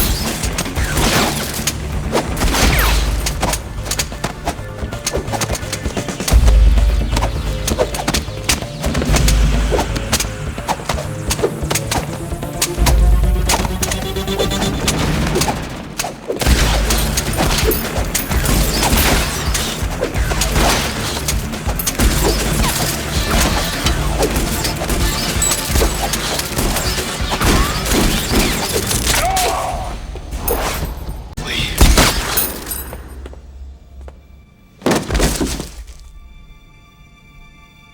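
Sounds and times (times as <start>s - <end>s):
rapid gunfire: 0.0s - 29.4s
background music: 0.0s - 37.9s
fight impacts: 12.8s - 33.2s, 34.8s - 36.1s.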